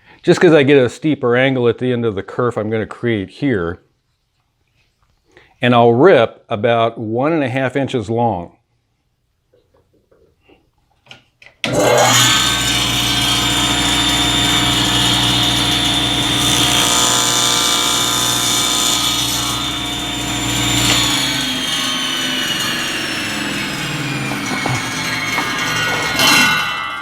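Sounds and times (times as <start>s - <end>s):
saw blade winding down: 11.6s - 27.0s
table saw motor and blade whine: 11.6s - 27.0s.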